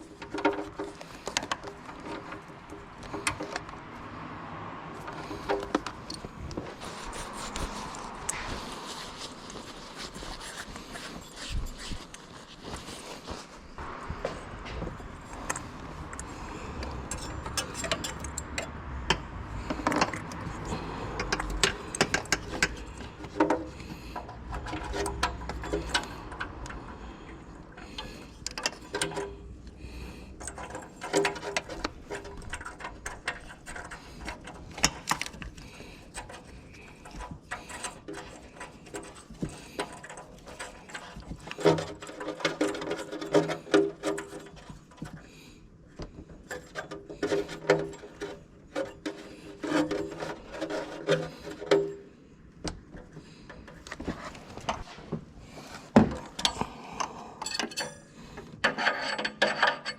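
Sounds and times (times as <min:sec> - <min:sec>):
hand tools clicking and tapping: 0:00.0 - 0:04.2, 0:05.0 - 0:08.8, 0:14.2 - 0:59.9
metal clanks ringing: 0:57.4 - 0:59.9.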